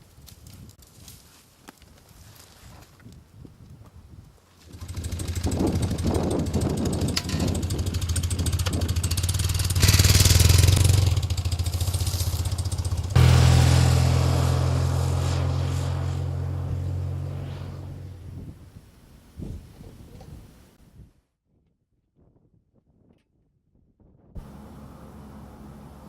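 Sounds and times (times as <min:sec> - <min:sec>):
motorcycle engine running: 0:04.6 - 0:18.2.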